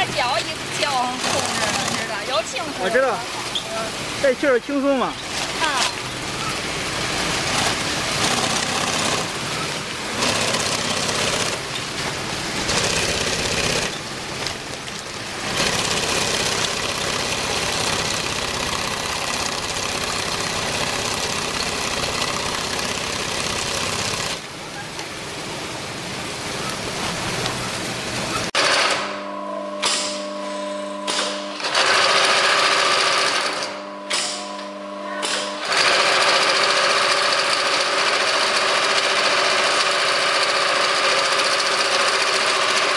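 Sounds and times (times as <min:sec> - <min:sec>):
industrial sewing machine running: 0:00.0 - 0:02.8, 0:05.3 - 0:24.4, 0:28.6 - 0:29.1, 0:31.4 - 0:34.4, 0:35.2 - 0:42.9.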